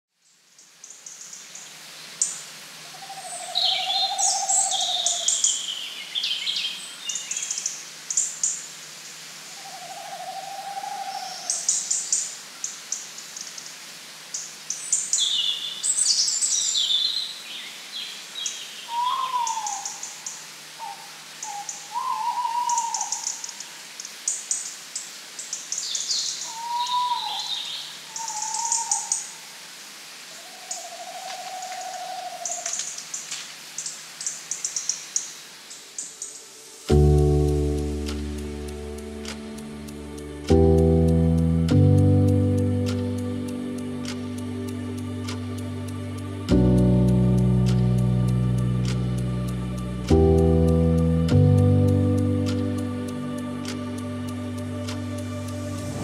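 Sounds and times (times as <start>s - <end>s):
birds chirping: 0.6s - 24.7s.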